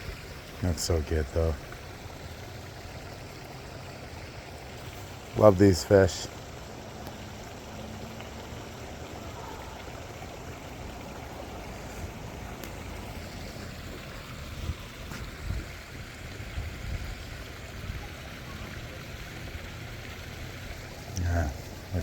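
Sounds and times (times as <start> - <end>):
waterfall splashing: 3.2 - 16.5.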